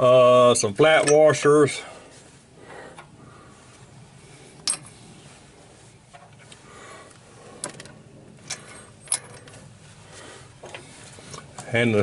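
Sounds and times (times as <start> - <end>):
metal washers clinking: 4.6 - 5.0, 7.6 - 9.7.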